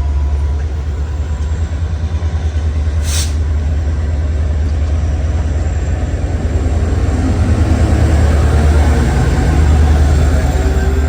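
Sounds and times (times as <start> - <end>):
diesel train engine rumble: 0.0 - 11.0
short burst of hiss: 3.0 - 3.4.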